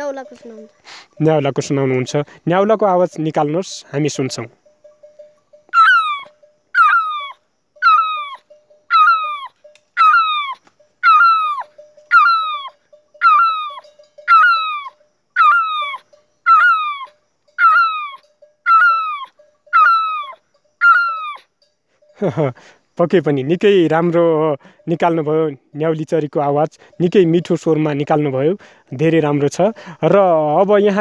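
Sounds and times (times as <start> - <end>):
boy imitating bird call: 5.7 - 21.5.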